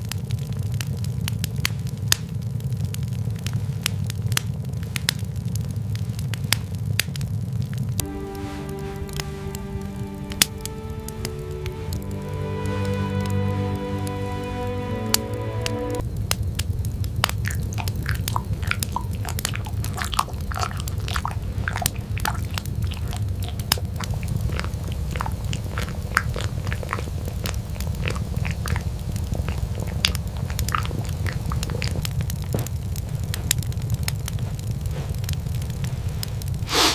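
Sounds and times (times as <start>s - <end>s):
wood fire crackling and popping: 0.0s - 8.0s, 16.1s - 36.9s
low rumble: 8.0s - 36.0s.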